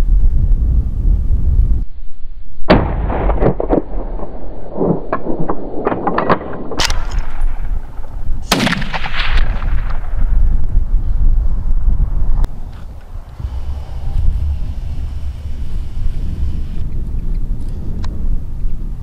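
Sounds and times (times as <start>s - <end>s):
wind rumbling on microphone: 0.0s - 19.0s
gunshots with echo: 6.8s - 10.3s.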